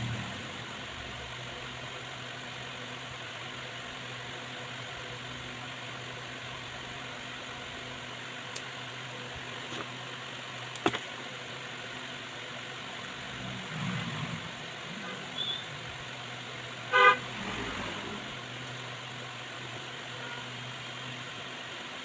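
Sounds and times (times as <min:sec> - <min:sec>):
steady low hum: 0:00.0 - 0:22.0
vehicle horn toot: 0:16.9 - 0:17.3.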